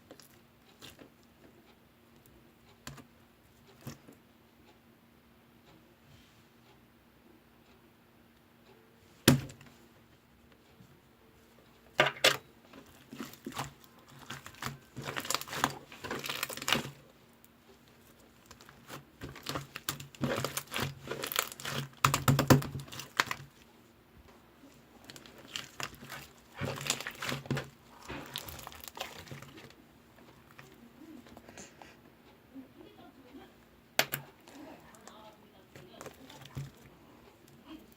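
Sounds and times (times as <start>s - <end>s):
slime squishing and popping: 12.2s - 17.0s, 18.4s - 23.6s, 25.0s - 29.8s.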